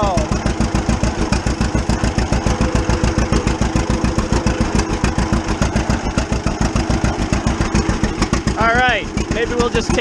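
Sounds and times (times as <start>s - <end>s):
tractor engine popping: 0.0s - 10.0s.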